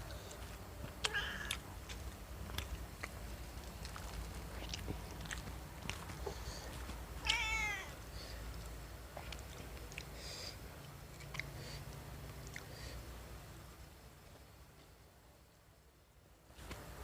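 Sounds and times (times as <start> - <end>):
cat meowing: 1.1 - 1.6, 7.2 - 8.0.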